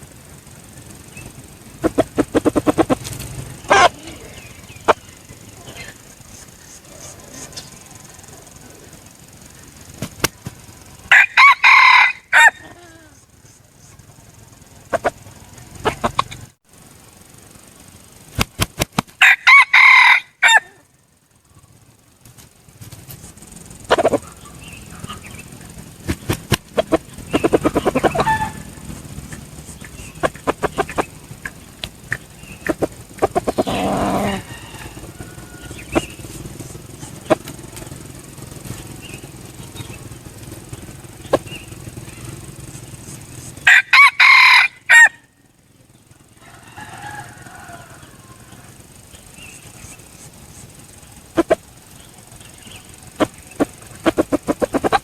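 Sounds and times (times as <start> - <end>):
quick clicking calls: 0.0 - 16.5, 17.8 - 20.8, 22.2 - 43.9, 47.9 - 55.0
wing flaps: 0.0 - 20.8, 21.7 - 44.2, 46.3 - 55.0
rooster crowing: 1.9 - 9.6, 10.6 - 13.2, 19.2 - 20.9, 26.8 - 29.5, 32.4 - 38.4, 43.6 - 45.4, 46.2 - 49.8.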